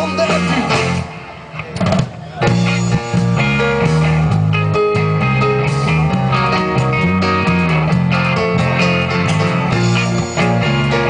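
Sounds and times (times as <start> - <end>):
guitar: 0.0 - 11.0
instrumental band music: 0.0 - 11.0.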